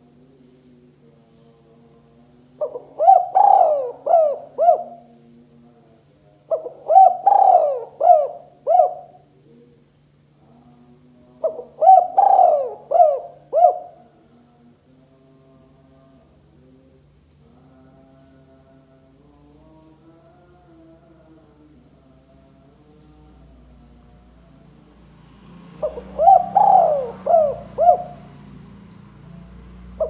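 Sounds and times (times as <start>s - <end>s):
dove cooing: 2.6s - 5.1s, 6.5s - 9.3s, 11.4s - 14.1s, 25.8s - 28.3s.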